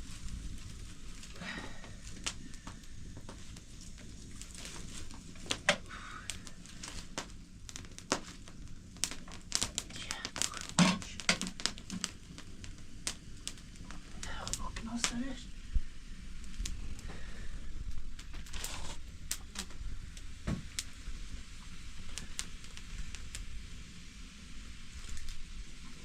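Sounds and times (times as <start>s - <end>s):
crinkling handling noise: 0.0s - 14.6s, 16.5s - 19.9s.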